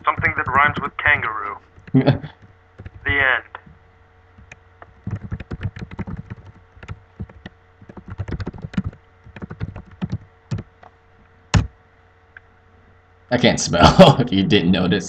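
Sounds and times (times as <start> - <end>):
typing on computer keyboard: 1.8 - 3.0, 4.4 - 10.9.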